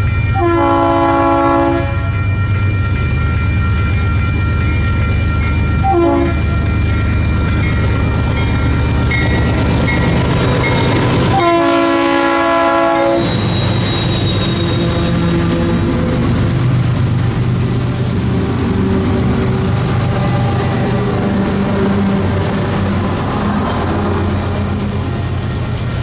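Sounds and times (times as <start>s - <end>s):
low rumble of passing train: 0.0s - 26.0s
locomotive air horn blowing: 0.3s - 2.1s, 5.8s - 6.4s, 11.1s - 16.0s.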